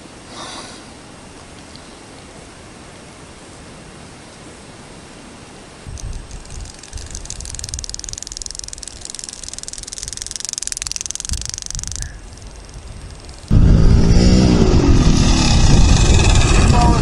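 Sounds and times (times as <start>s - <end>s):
wind buffeting microphone: 5.8s - 9.1s, 9.8s - 17.0s
dirt bike engine rattling: 6.0s - 17.0s.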